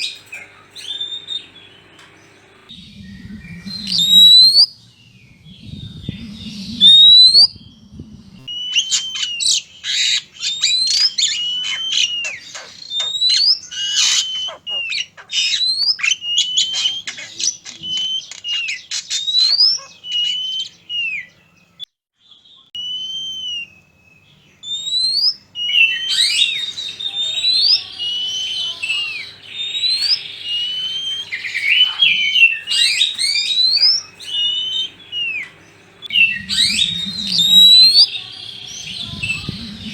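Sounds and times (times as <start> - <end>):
faint low hum: 0.0 - 19.1, 23.6 - 39.9
magpie-robins singing: 0.0 - 39.9.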